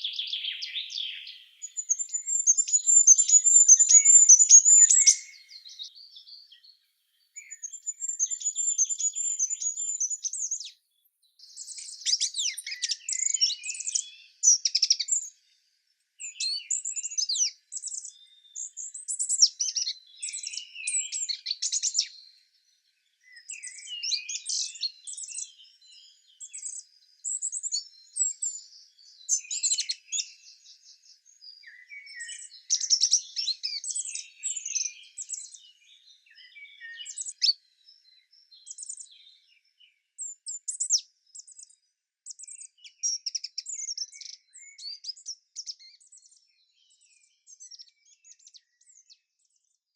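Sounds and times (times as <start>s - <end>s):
songbirds chirping and trilling: 0.0s - 49.9s.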